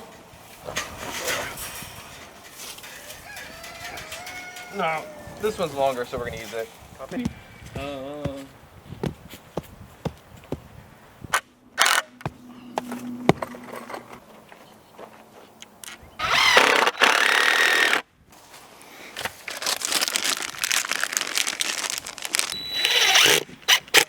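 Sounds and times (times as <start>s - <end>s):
power drill driving screws into wood: 11.8s - 12.1s, 16.2s - 18.0s, 22.8s - 24.0s.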